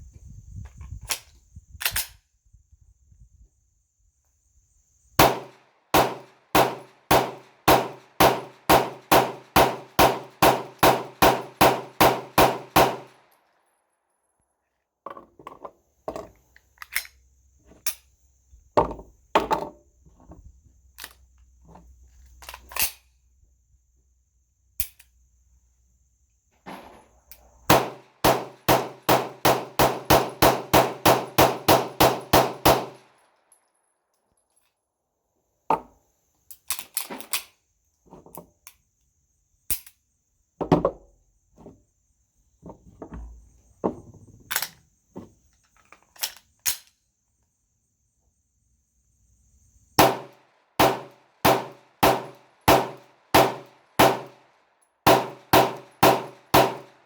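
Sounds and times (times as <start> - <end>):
pistol shots: 5.2 - 13.2, 27.7 - 33.0, 50.0 - 54.4, 55.0 - 57.0.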